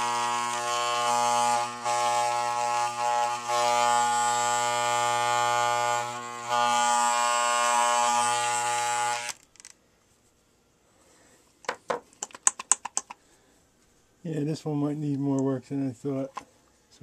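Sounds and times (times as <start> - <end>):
hair clipper buzzing: 0.0 - 9.4.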